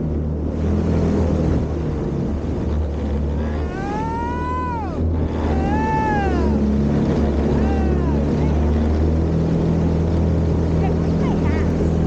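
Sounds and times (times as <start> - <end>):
jet kayak motor running: 0.0 - 12.0
water noise: 0.0 - 12.0
long high rising calls: 3.5 - 8.4.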